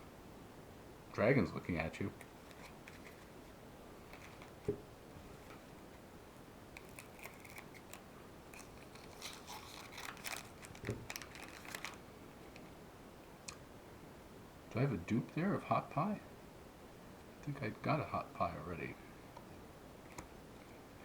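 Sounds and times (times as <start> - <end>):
cards sliding and rustling: 2.2 - 3.4, 4.1 - 4.7, 6.8 - 12.0.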